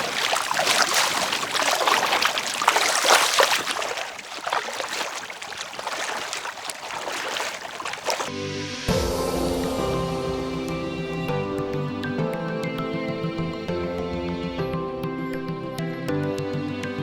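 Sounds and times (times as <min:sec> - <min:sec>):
paddle splashing water: 0:00.0 - 0:08.4
background music: 0:08.3 - 0:17.0.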